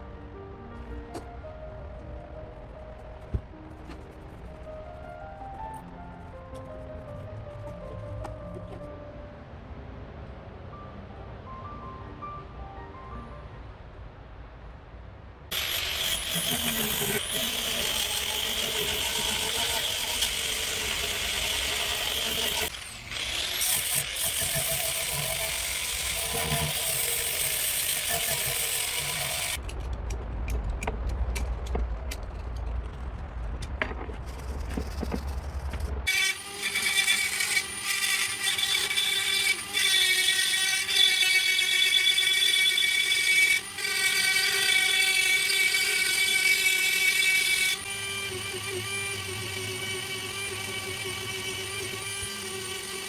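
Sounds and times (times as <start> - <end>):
power tool abrading metal: 15.5 - 29.6, 34.7 - 53.0
motor whine: 43.6 - 53.0.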